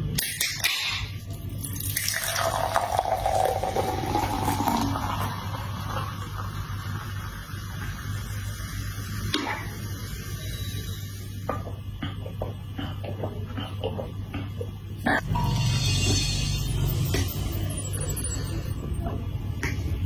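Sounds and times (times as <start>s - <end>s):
liquid pouring: 1.3s - 8.4s.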